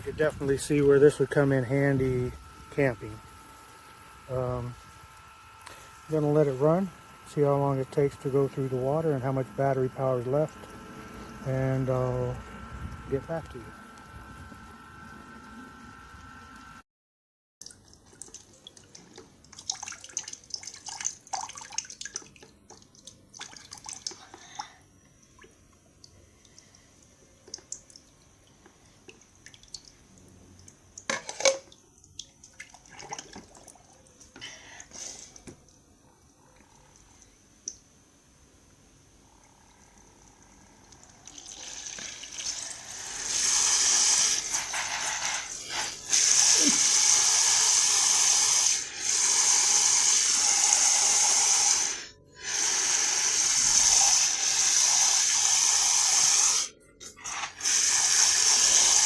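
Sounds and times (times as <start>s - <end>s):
shower spraying water: 0.0s - 16.8s, 39.7s - 59.0s
water dripping: 17.6s - 24.3s, 25.2s - 31.1s, 31.7s - 34.2s, 37.0s - 37.8s.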